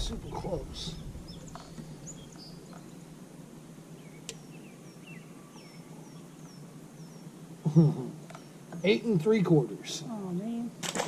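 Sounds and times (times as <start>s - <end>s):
small birds chirping: 0.0s - 10.8s
faint low steady hum: 0.0s - 11.0s.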